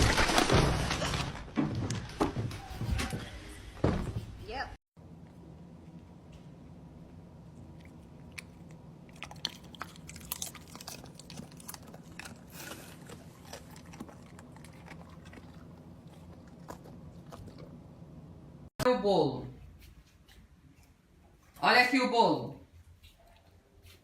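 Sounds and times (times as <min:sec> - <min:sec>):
steady low hum: 0:05.0 - 0:18.7
chewing and crunching: 0:05.1 - 0:18.3.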